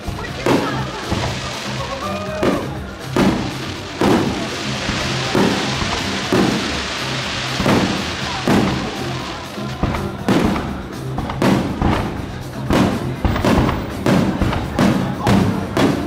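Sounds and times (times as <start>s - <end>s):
firework shells bursting: 0.0s - 16.0s
music with bass line: 0.0s - 16.0s.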